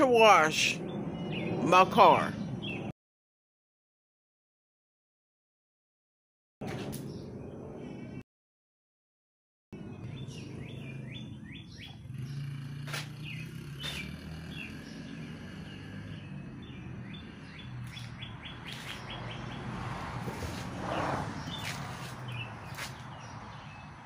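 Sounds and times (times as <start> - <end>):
small birds chirping: 0.1 - 2.9, 9.8 - 24.0.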